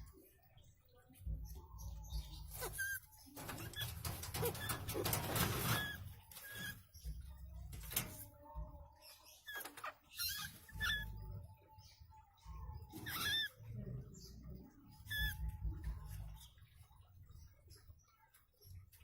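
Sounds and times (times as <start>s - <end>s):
animals scrabbling and scratching: 1.1s - 11.4s, 12.5s - 19.0s
short high squeaks: 2.6s - 6.8s.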